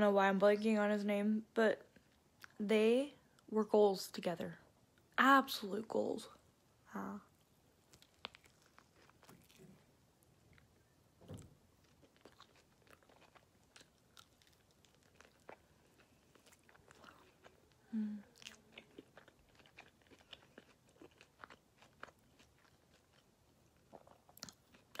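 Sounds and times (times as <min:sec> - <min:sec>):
low hum from eater: 0:04.6 - 0:25.0
person chewing: 0:07.4 - 0:10.9, 0:11.7 - 0:25.0.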